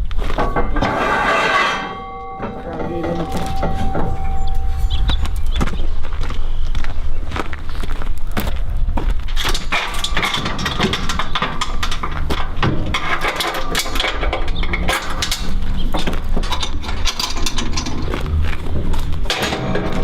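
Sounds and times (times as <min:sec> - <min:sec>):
metal clanks and knocks: 0:00.0 - 0:06.0, 0:09.3 - 0:20.0
hydraulic power unit humming: 0:00.3 - 0:06.3.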